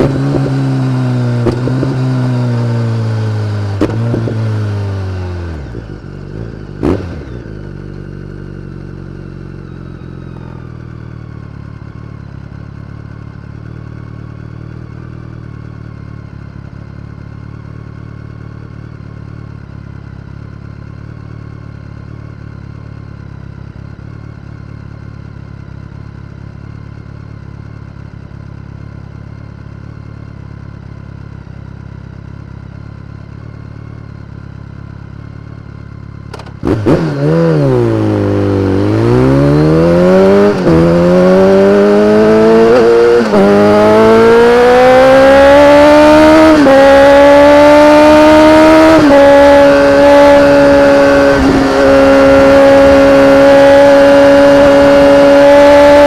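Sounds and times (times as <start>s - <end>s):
motorcycle engine revs falling: 0.0s - 8.9s, 36.2s - 56.0s
motorcycle engine idling: 7.4s - 36.6s
exhaust pops: 36.3s - 36.9s.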